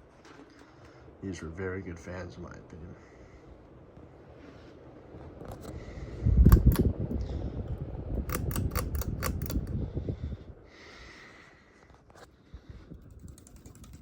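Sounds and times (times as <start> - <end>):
ceiling fan running: 0.0 - 14.0
rush of moving air: 4.1 - 11.5
sharp clicks: 6.4 - 7.2, 8.2 - 9.8.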